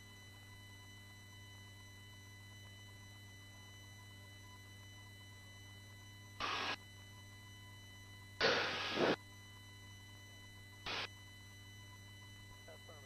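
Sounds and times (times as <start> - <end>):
steady low hum: 0.0 - 13.0
short bursts of hiss: 8.4 - 9.2.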